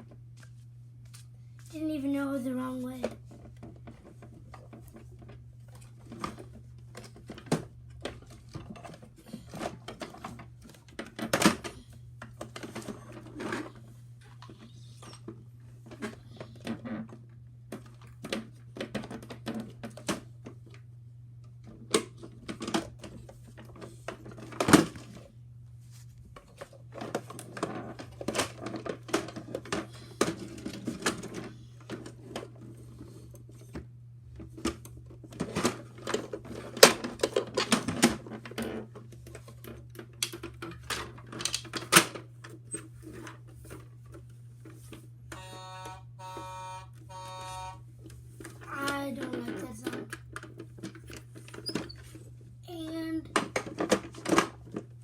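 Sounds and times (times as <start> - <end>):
plastic toy parts clicking and rattling: 34.5 - 42.2.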